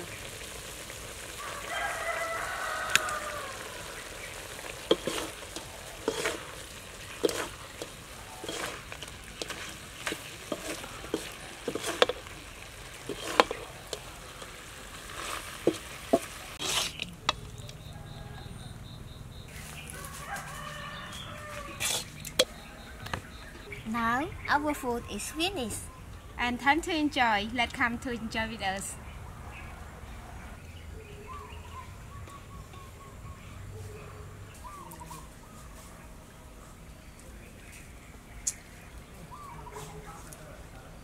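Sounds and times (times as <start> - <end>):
food sizzling in a wok: 0.0 - 18.2
spatula knocking and scraping pan: 4.8 - 17.6.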